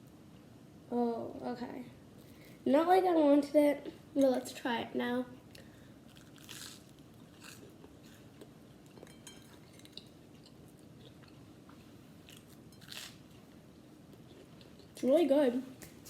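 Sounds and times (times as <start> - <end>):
person chewing with soft crunches: 5.5 - 15.1.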